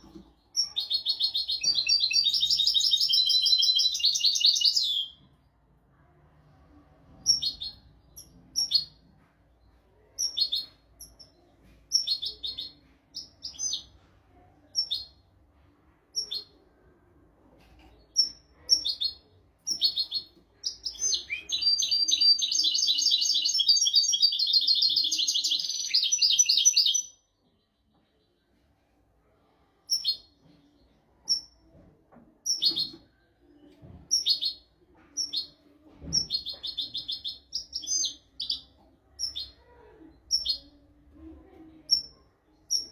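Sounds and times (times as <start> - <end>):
goldfinch chirps and twittering: 0.6 - 5.2, 18.2 - 27.1.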